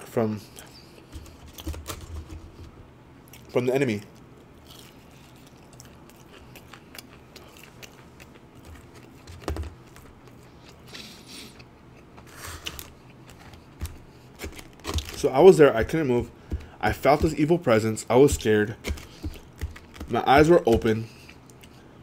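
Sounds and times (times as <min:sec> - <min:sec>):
chewing crispy fried chicken: 0:03.2 - 0:03.5, 0:04.1 - 0:16.0.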